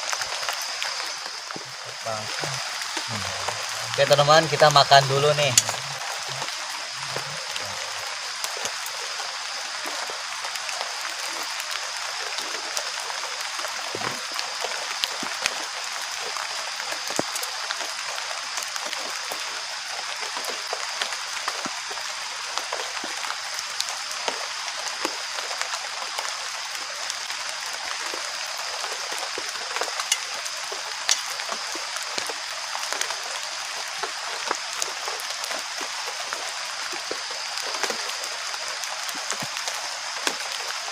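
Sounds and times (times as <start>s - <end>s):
high hiss: 0.0s - 11.4s
heavy rain: 0.0s - 40.9s
rain drops ticking: 0.0s - 40.9s.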